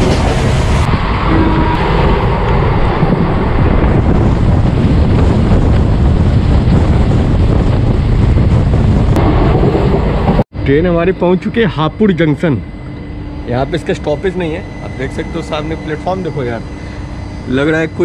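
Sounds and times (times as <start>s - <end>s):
wind buffeting microphone: 0.0s - 10.4s
train coach rumbling: 0.0s - 18.0s.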